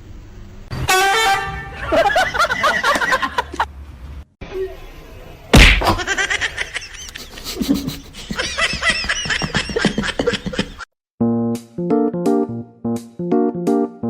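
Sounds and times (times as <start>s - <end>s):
loud thud: 5.5s - 6.1s
person laughing: 5.9s - 10.9s
piano music: 11.8s - 14.0s.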